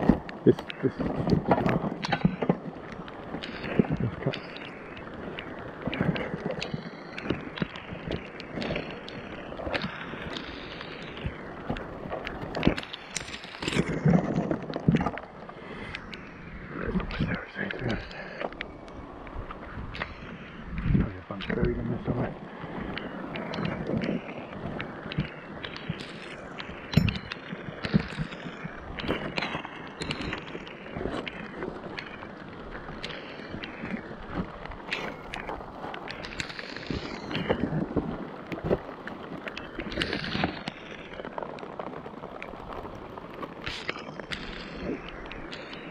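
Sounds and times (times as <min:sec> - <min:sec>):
rain hissing: 0:00.0 - 0:45.9.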